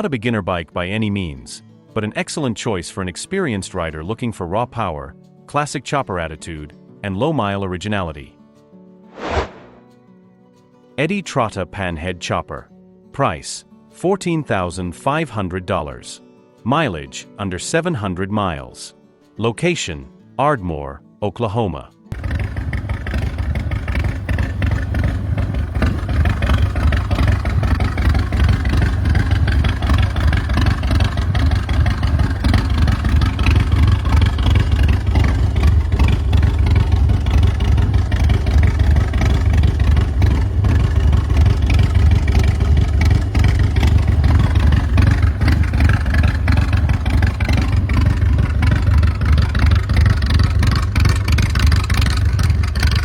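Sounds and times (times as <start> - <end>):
motorcycle engine running: 22.1 - 53.0.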